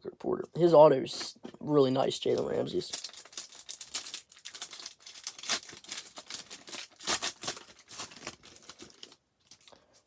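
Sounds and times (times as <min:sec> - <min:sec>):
plastic wrappers crinkling and tearing: 0:02.2 - 0:10.0.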